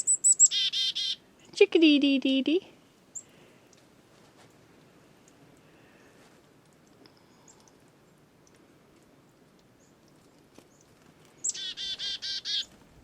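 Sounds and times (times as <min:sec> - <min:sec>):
chickadee calling: 0:00.0 - 0:01.2, 0:11.4 - 0:12.7.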